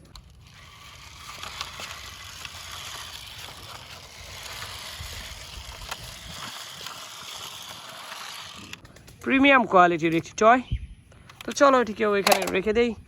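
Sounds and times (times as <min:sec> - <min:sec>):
toy bus rolling: 0:00.0 - 0:08.8, 0:11.3 - 0:12.7.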